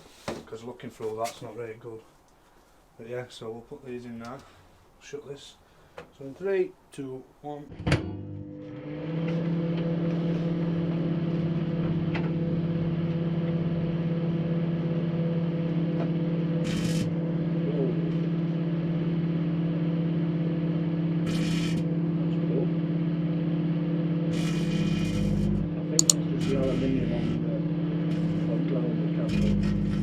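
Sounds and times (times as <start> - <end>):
microwave oven humming: 7.9 - 17.6.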